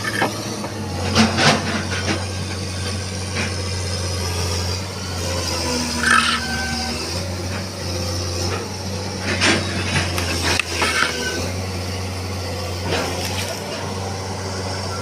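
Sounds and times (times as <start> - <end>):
short mechanical squeaks: 0.0 - 0.4, 5.9 - 6.9, 10.6 - 11.5
excavator engine droning: 0.0 - 15.0.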